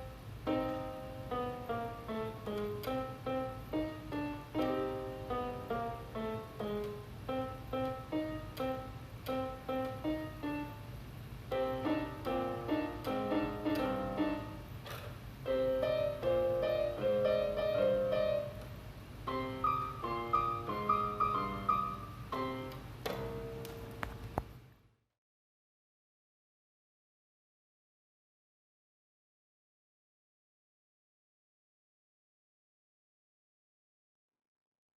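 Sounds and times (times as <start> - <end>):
solo piano playing: 0.0 - 24.3
low steady hum: 0.0 - 25.0.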